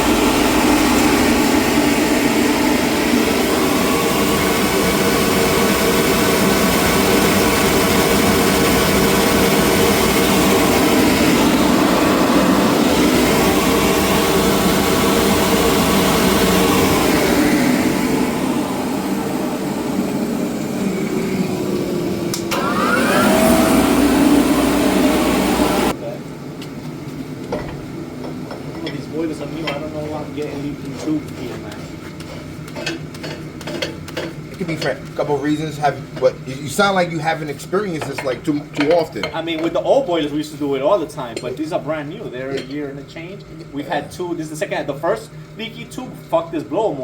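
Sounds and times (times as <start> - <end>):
motor-driven machine humming: 0.0 - 26.0.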